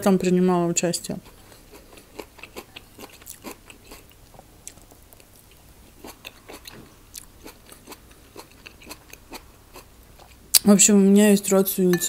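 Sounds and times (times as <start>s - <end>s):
person chewing with crunches: 1.2s - 10.6s.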